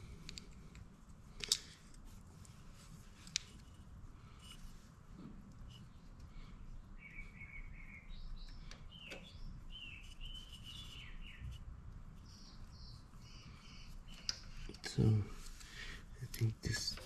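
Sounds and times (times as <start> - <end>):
birds chirping: 5.8 - 11.6, 12.2 - 16.9.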